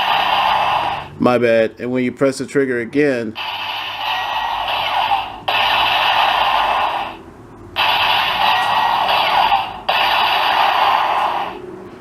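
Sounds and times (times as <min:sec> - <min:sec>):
toy blaster electronic sound effects: 0:00.0 - 0:01.1, 0:03.4 - 0:07.2, 0:07.8 - 0:11.6.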